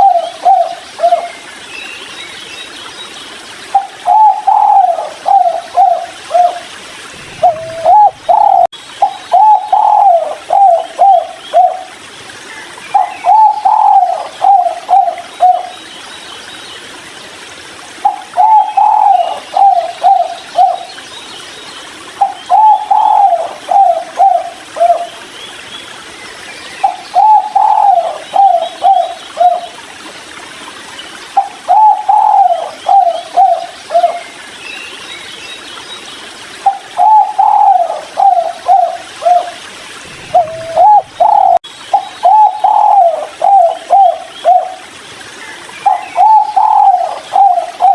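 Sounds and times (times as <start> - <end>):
dove cooing: 3.8 - 6.6, 7.2 - 8.7, 9.3 - 11.9, 13.0 - 15.7, 18.0 - 20.8, 22.2 - 25.1, 26.9 - 29.6, 31.7 - 34.2, 36.7 - 41.6, 42.2 - 44.8, 45.9 - 47.9.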